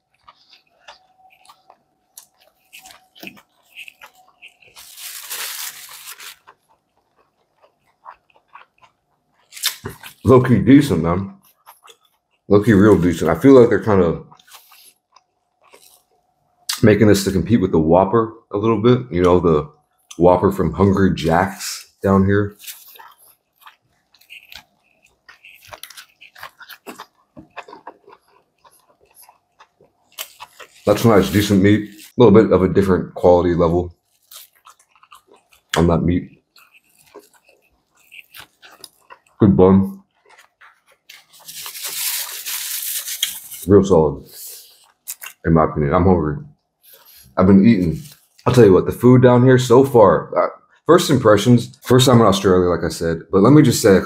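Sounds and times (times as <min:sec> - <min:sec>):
close chewing sounds: 0:00.0 - 0:16.8, 0:21.4 - 0:32.2, 0:33.6 - 0:45.4.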